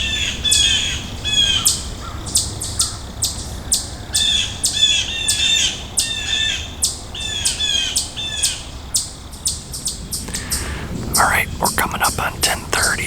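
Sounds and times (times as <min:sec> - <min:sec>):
birds making short harsh calls: 0:10.1 - 0:11.2.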